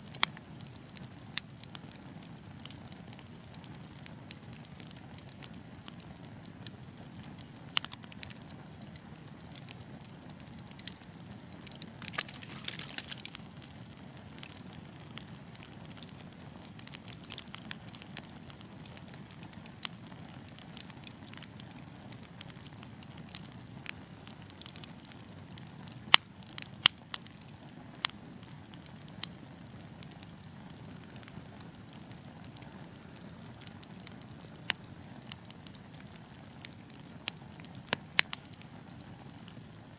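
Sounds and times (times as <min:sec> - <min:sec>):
fire crackling and popping: 0:00.0 - 0:39.9
fire rumbling in fireplace: 0:00.2 - 0:39.9
loud wood snaps: 0:12.0 - 0:13.5.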